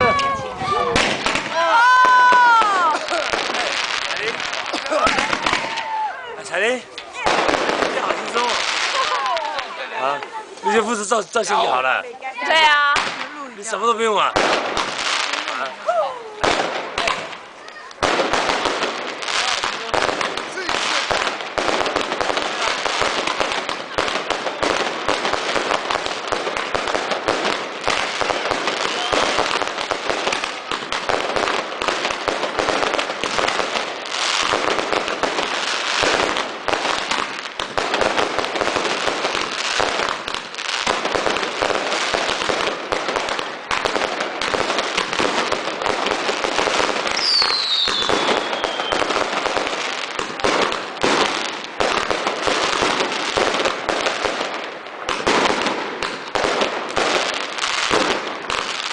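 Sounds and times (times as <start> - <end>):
fireworks crackling and banging: 0.0 - 58.9
falling firework whistle: 47.2 - 49.0.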